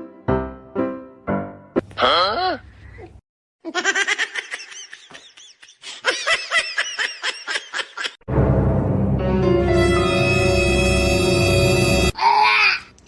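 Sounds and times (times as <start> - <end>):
music: 0.0 - 1.8, 8.3 - 12.2.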